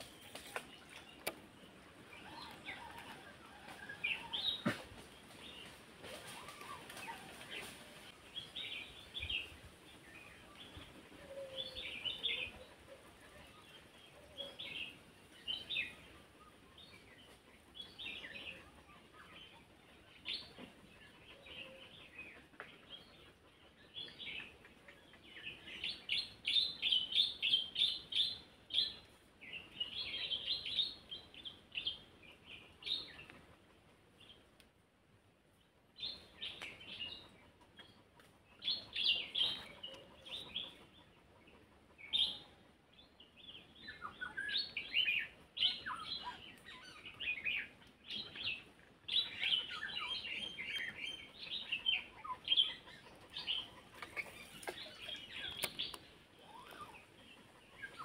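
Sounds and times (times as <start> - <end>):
small birds chirping: 36.0 - 58.0.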